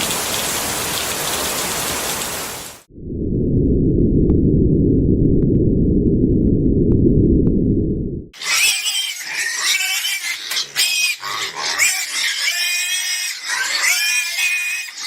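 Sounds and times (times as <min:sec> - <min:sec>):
pigs squealing: 0:08.4 - 0:15.0.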